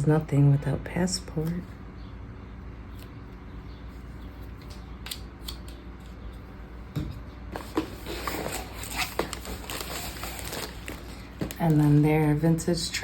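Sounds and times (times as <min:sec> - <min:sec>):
paper and plastic rustling: 0:07.5 - 0:12.6.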